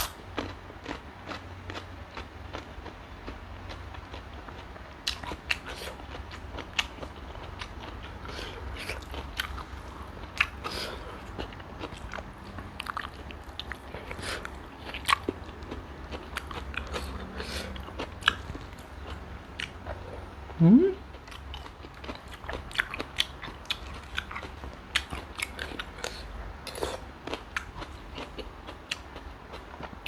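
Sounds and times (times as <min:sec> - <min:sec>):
person chewing and crunching: 0:00.0 - 0:30.0
low hum: 0:20.5 - 0:21.1.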